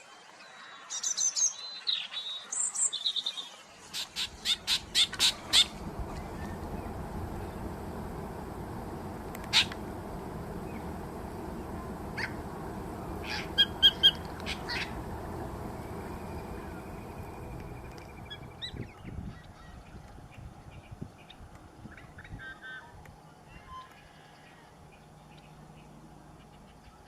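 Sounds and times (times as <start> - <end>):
birds calling: 3.9 - 18.8
low background hiss: 4.0 - 19.1.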